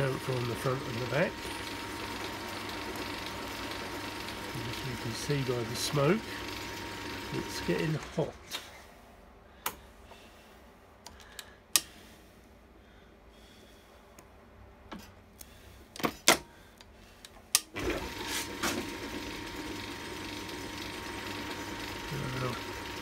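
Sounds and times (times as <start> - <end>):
lathe running with thin whine: 0.0 - 8.3, 17.8 - 23.0.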